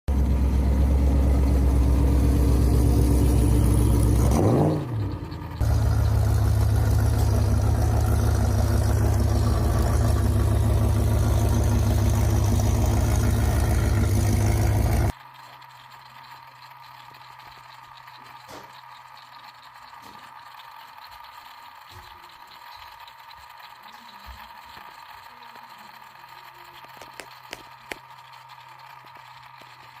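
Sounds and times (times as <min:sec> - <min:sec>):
truck engine running loud: 0:00.1 - 0:15.1.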